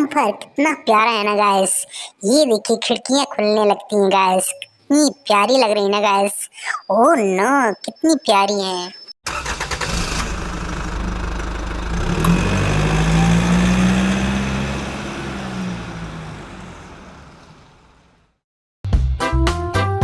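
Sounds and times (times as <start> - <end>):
vehicle engine running: 9.3 - 18.4.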